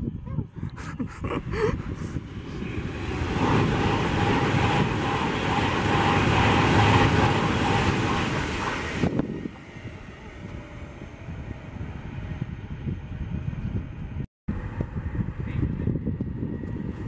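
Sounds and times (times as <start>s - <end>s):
train rushing past at speed: 1.3s - 17.0s.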